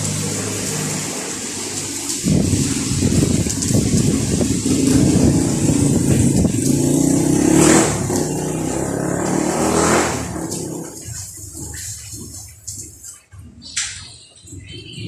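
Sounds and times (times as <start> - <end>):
motor engine revving: 2.3 - 11.2.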